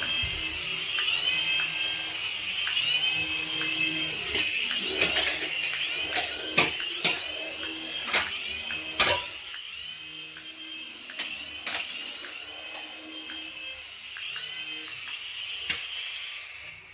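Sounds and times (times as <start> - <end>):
toy motor whining: 0.0 - 16.9.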